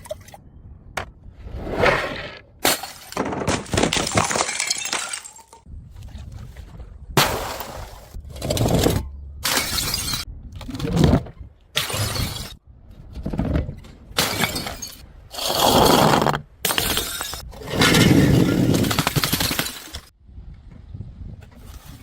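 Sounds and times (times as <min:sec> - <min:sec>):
glass bottles smashing: 0:02.6 - 0:05.6, 0:09.4 - 0:10.2, 0:14.2 - 0:15.0, 0:16.7 - 0:20.1
glass shards scattering: 0:02.6 - 0:05.6, 0:09.4 - 0:10.3, 0:14.2 - 0:15.0, 0:16.7 - 0:20.1.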